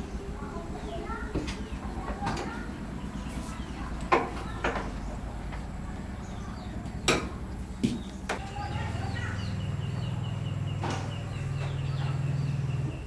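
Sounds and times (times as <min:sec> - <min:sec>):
low mechanical hum: 0:00.0 - 0:13.0
bird chirps: 0:08.0 - 0:13.0.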